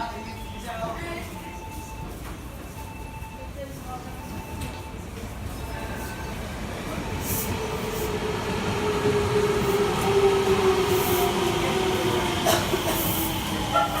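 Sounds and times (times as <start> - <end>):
train wheels rumbling: 5.3 - 14.0.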